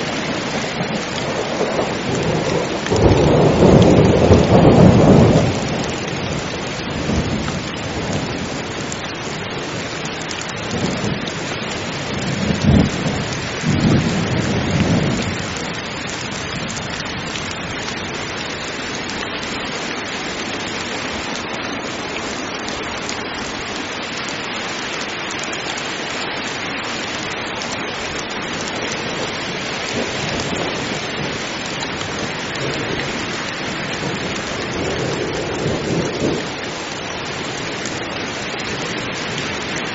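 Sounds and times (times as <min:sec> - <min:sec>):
heavy rain: 0:00.0 - 0:39.9
thunder rolling: 0:00.3 - 0:06.0
thunder clap: 0:00.7 - 0:06.0.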